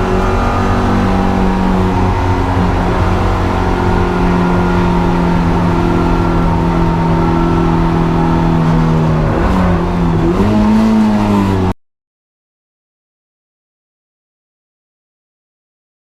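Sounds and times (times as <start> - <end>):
car engine running hard: 0.0 - 11.8.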